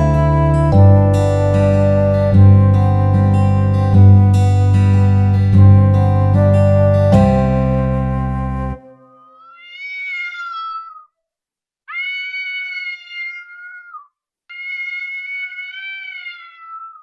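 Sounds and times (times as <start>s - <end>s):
strummed guitar music: 0.0s - 9.0s
cat meowing: 9.1s - 11.2s, 11.9s - 17.0s.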